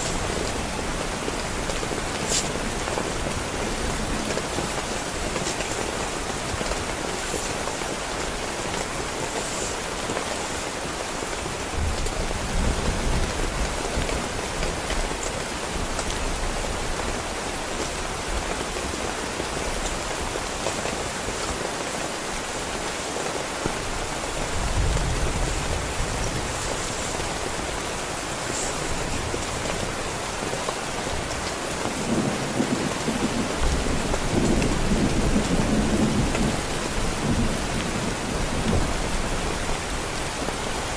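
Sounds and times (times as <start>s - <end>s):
heavy rain on a tent: 0.0s - 40.9s
rolling thunder: 31.9s - 39.5s.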